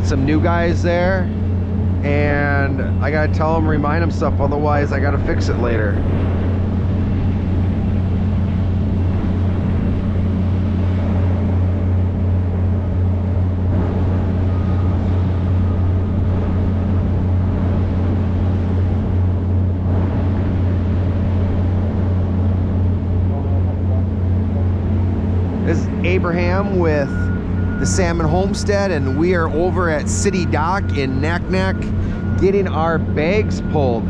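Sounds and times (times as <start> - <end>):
large engine humming: 0.0 - 34.0.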